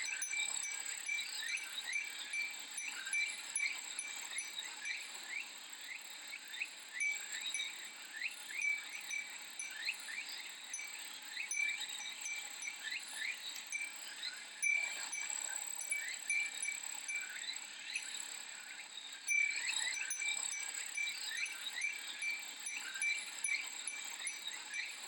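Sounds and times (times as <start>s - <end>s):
wind chime tinging: 0.0s - 5.0s, 7.0s - 18.1s, 19.3s - 25.0s
cicada chorus: 0.0s - 25.0s.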